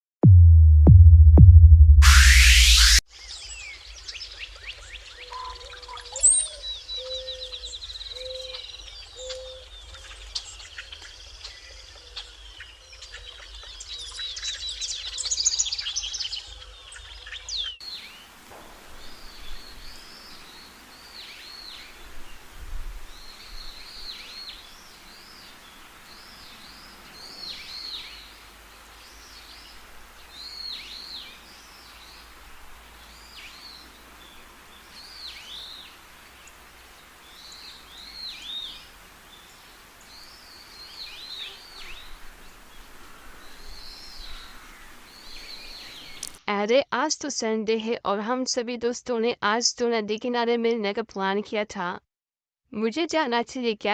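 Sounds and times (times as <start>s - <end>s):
birds chirping: 2.3s - 46.4s
steady hiss: 17.8s - 46.4s.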